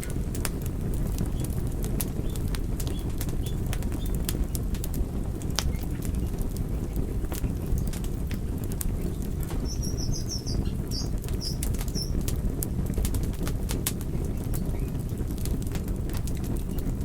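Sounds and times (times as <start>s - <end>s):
fire crackling and popping: 0.0s - 17.0s
low rumble of flames: 0.0s - 17.0s
high chirps: 9.7s - 12.1s.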